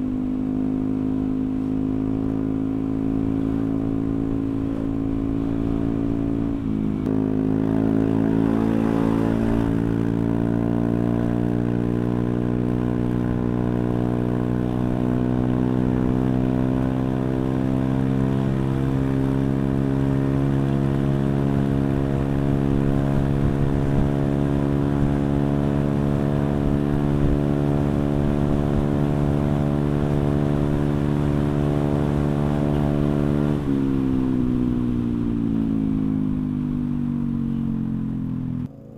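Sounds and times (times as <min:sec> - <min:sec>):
scooter engine at raised revs: 0:00.0 - 0:38.9.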